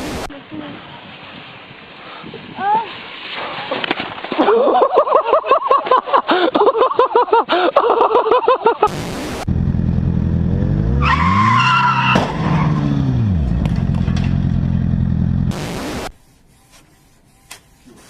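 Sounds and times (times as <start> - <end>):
vehicle engine revving: 9.4 - 16.1.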